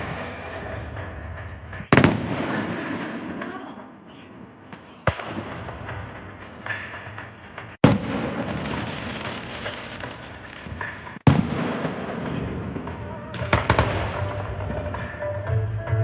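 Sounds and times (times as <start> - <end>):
sharp firework cracks: 7.8 - 12.2, 13.4 - 15.6
fireworks booming: 7.8 - 16.0
fireworks crackling rumble: 7.9 - 16.0.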